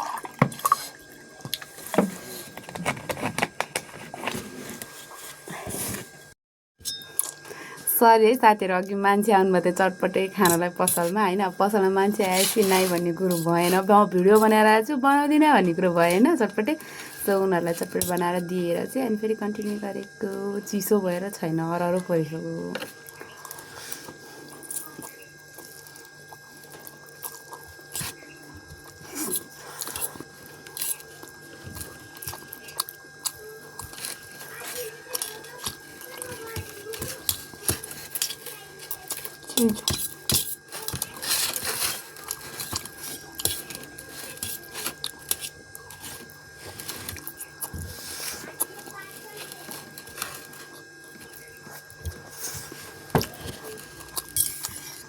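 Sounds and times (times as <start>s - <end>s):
close chewing: 22.9s - 55.0s.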